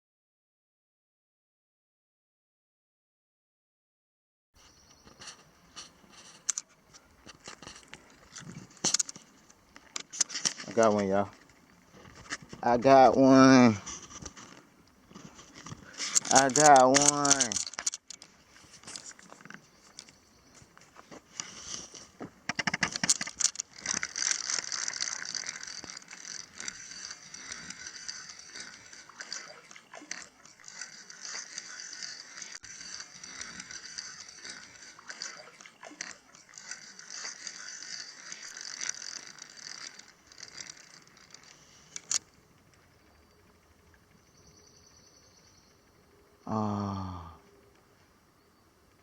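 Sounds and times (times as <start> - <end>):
fishing reel clicking whir: 4.8 - 44.3
reel clacks: 4.9 - 44.1.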